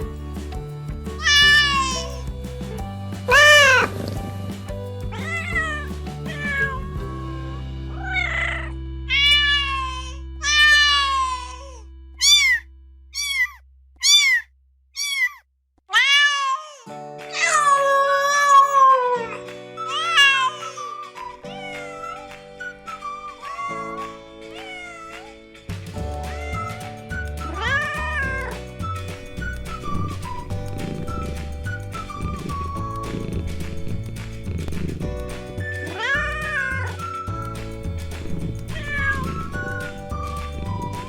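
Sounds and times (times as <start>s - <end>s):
background music with low notes: 0.0s - 13.1s, 16.9s - 41.0s
cats meowing: 1.2s - 2.2s, 3.3s - 4.2s, 5.1s - 7.0s, 7.9s - 12.6s, 13.2s - 14.4s, 15.0s - 25.4s, 26.1s - 28.5s, 35.8s - 37.3s, 38.7s - 40.9s.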